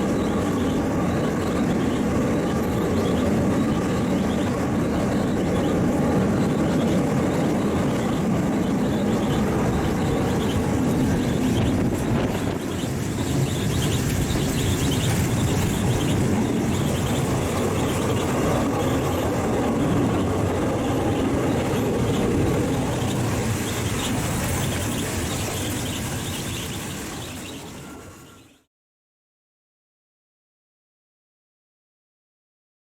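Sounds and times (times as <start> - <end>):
train running on rails: 0.0 - 28.7.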